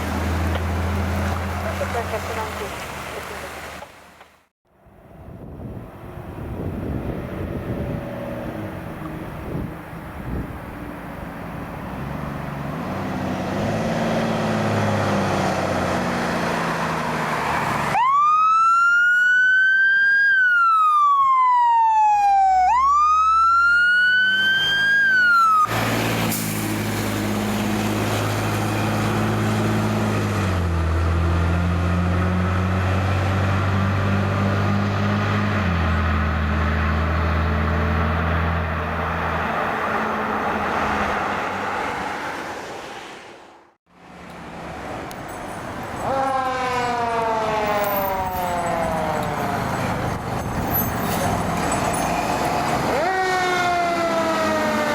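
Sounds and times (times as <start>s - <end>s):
fire truck engine revving: 6.3s - 42.6s, 46.0s - 54.9s
siren wailing: 17.9s - 25.7s, 46.0s - 50.1s, 52.8s - 54.9s.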